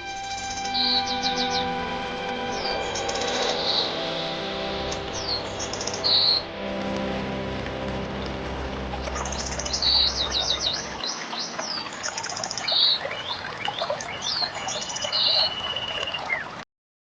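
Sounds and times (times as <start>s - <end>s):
soft background music drone: 0.0s - 12.6s
songbirds chirping and trilling: 0.2s - 16.6s.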